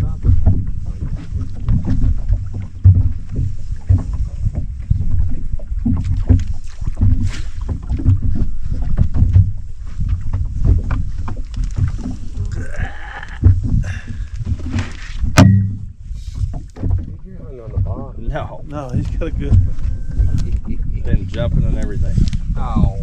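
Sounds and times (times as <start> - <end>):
water slapping against boat hull: 0.0 - 23.0
wind on microphone: 0.0 - 23.0
irregular knocks: 15.4 - 15.9.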